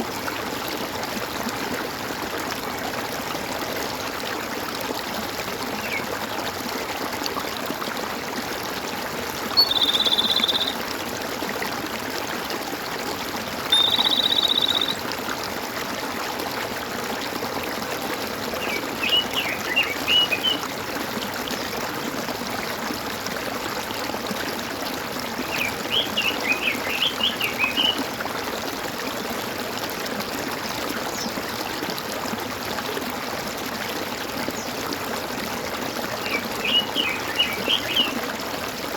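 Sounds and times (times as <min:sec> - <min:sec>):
stream gurgling: 0:00.0 - 0:38.9
bird high chirping: 0:09.5 - 0:10.8, 0:13.7 - 0:15.0, 0:36.3 - 0:38.1
bird buzzy trill: 0:13.7 - 0:15.0.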